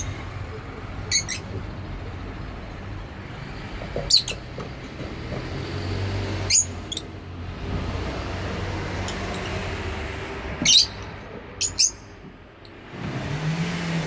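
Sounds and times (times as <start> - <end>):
lovebirds chirping: 1.0 - 1.6, 10.5 - 12.2.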